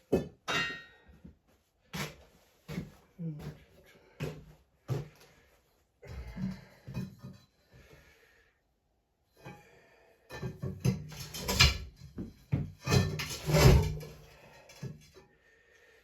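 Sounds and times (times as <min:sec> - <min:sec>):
objects knocking and scraping: 0:10.4 - 0:15.2.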